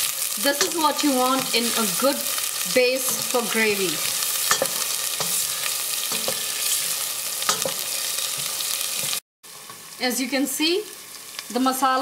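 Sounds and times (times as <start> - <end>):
paste sizzling in hot oil: 0.0 - 12.0
stirring spoon knocking: 4.4 - 9.2.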